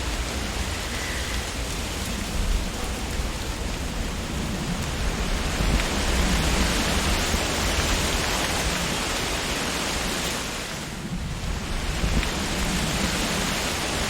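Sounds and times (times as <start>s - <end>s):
wind blowing through tree leaves: 0.0s - 14.0s.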